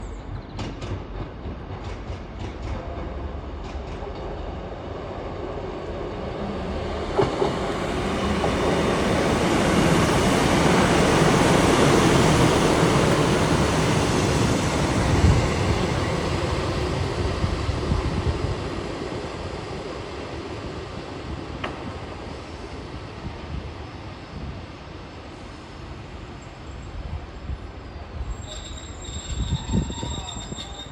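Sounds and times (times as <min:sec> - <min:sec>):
diesel train engine rumble: 0:00.0 - 0:30.9
train wheels on rails: 0:00.0 - 0:30.9.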